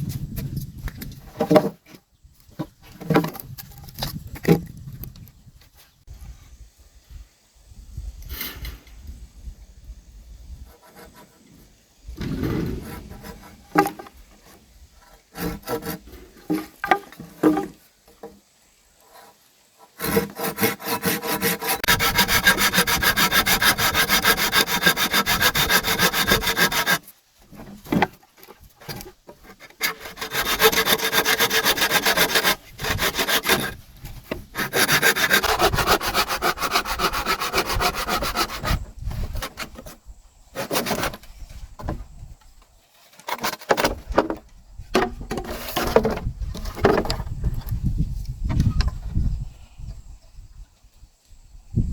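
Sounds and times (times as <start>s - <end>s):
scraping bamboo: 10.7s - 18.4s, 19.0s - 40.0s, 40.6s - 42.0s, 43.0s - 44.4s, 45.0s - 47.3s.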